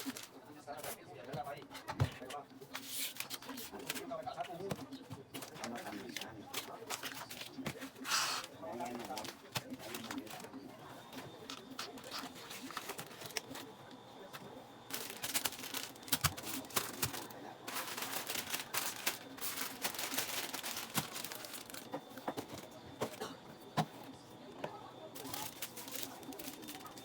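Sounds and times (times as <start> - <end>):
plastic packaging crinkling: 0.0 - 0.4, 5.4 - 10.5, 11.5 - 13.7, 14.9 - 23.2, 25.2 - 27.0.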